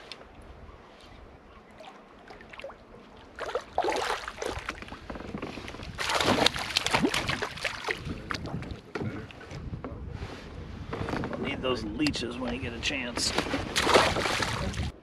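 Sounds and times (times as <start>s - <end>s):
fish splashing at water surface: 6.0s - 8.4s, 13.8s - 14.8s.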